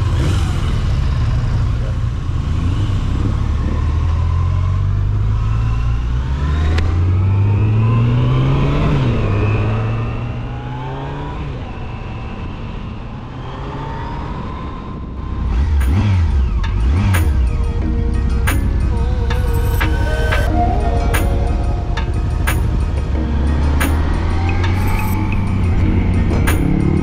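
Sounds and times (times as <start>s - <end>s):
motorcycle engine accelerating: 0.0s - 27.0s
music: 15.8s - 27.0s.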